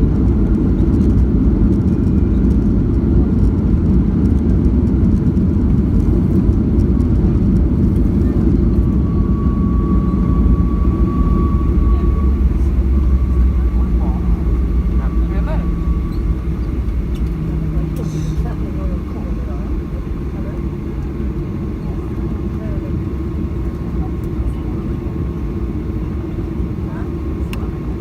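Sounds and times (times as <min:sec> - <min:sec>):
airplane cabin engine rumble: 0:00.0 - 0:28.0
thin steady whine: 0:05.6 - 0:28.0.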